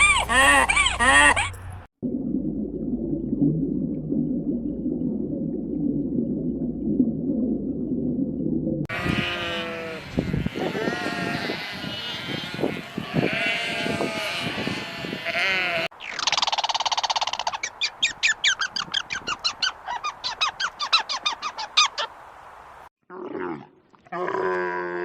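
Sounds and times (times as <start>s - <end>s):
sheep bleating: 8.9s - 15.9s
bird calling: 16.0s - 22.1s.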